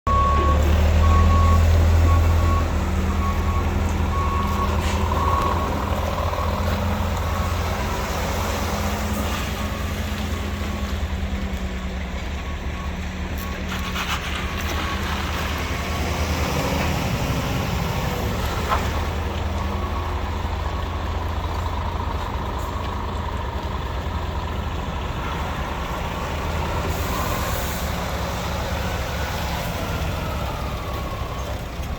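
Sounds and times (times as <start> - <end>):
truck diesel engine idling: 0.1 - 8.9, 19.0 - 28.9
reversing alarm beeping: 0.1 - 10.8.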